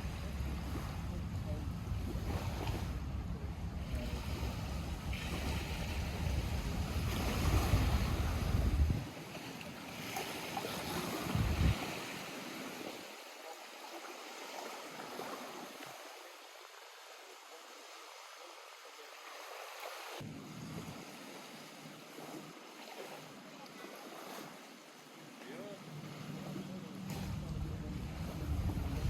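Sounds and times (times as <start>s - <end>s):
wind buffeting microphone: 0.0s - 9.2s, 10.9s - 12.2s, 27.1s - 29.0s
lake waves lapping: 0.0s - 29.0s.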